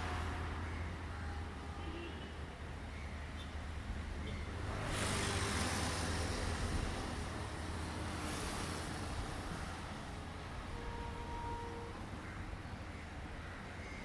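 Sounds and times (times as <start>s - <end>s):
vehicle passing rush: 4.6s - 10.2s.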